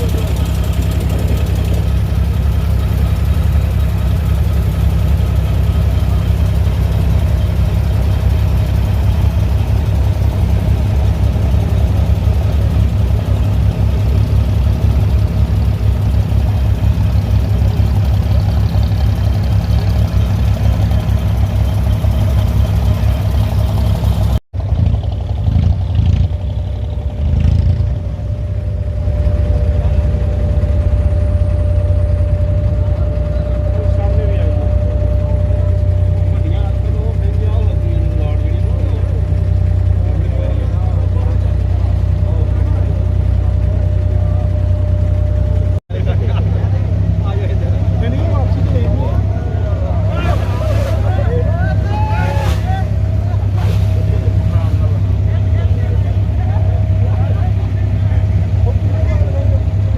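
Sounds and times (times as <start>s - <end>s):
boat diesel engine humming: 0.0s - 59.9s
quieter engine: 0.0s - 59.9s.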